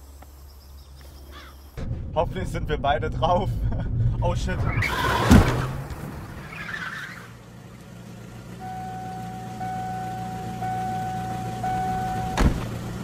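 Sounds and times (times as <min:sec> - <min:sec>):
car engine idling: 0:02.6 - 0:13.0
high electronic tone: 0:08.6 - 0:12.4.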